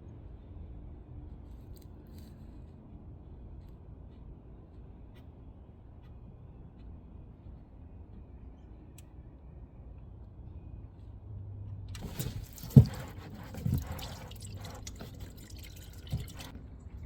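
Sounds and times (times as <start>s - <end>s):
oil splashing into a pan: 14.1s - 16.5s.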